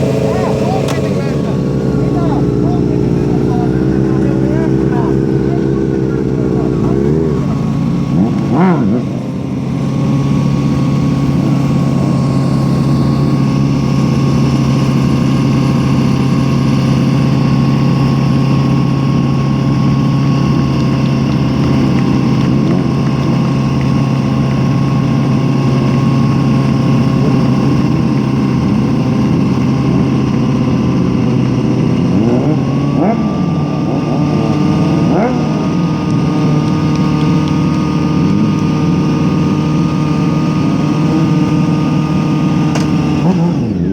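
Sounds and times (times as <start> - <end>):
engine running steadily: 0.0 - 43.9
faint steady whine: 0.0 - 43.9
rising and falling engine notes: 0.0 - 43.9.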